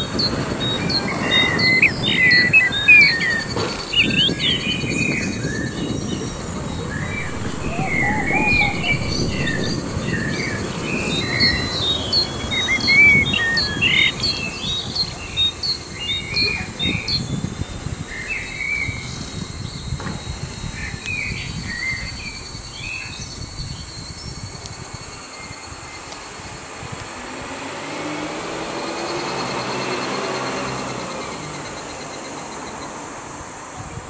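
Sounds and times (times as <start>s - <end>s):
small birds chirping and twittering: 0.0s - 26.6s
low outdoor rumble: 5.2s - 15.3s.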